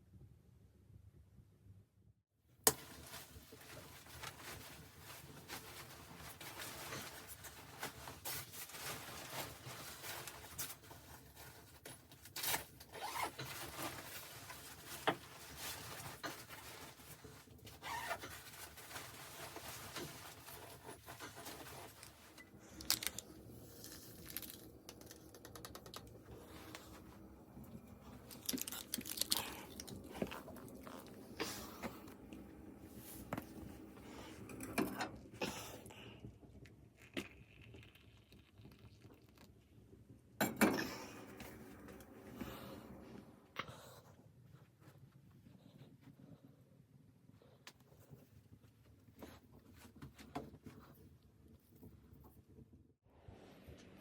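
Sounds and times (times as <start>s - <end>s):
rustling and scraping: 2.7s - 25.3s
clicks and crunches: 28.1s - 31.2s.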